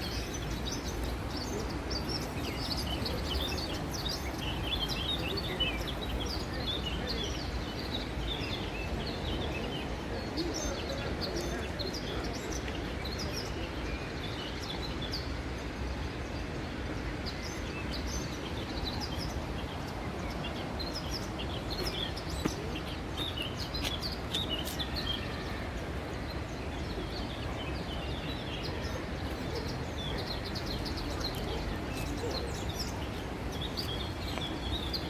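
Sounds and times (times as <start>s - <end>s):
low background noise: 0.0s - 35.0s
small birds chirping: 17.2s - 35.0s.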